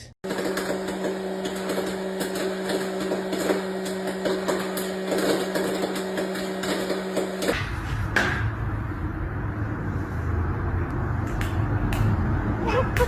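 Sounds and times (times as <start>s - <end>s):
electric motor humming: 0.2s - 7.6s.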